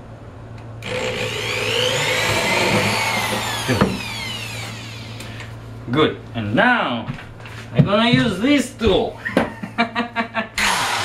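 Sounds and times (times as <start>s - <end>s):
electric drill whine: 0.8s - 5.5s, 10.6s - 11.0s.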